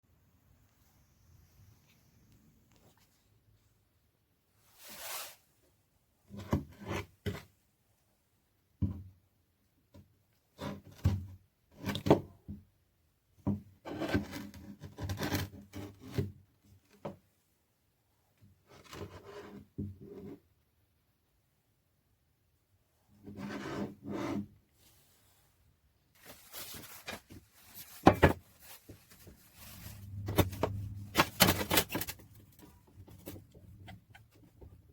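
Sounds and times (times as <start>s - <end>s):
rubbing and scraping: 23.2s - 34.9s.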